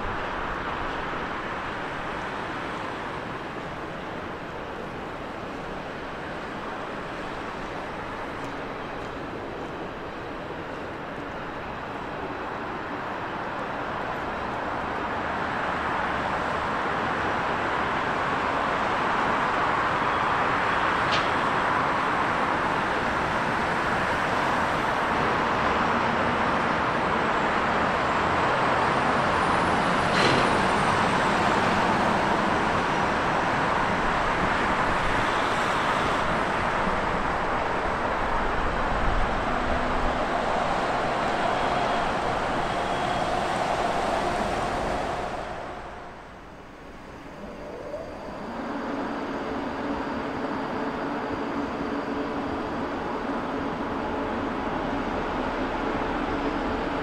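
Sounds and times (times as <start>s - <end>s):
train rolling noise: 0.0s - 57.0s
faint high whine: 33.9s - 57.0s.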